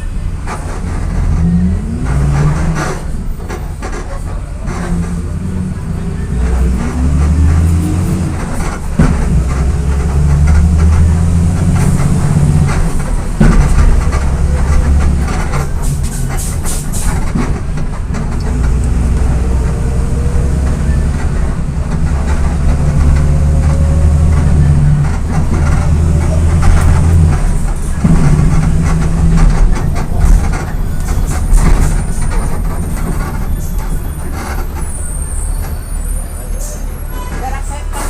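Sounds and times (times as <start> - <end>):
bus diesel engine pulling away: 0.0 - 38.0
rattling body noise: 0.1 - 38.0
sharp knocks: 6.8 - 19.2.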